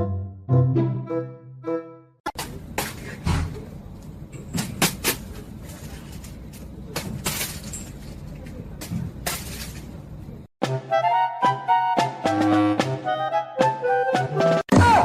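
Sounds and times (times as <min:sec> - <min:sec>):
low rumbling background noise: 0:02.4 - 0:10.5.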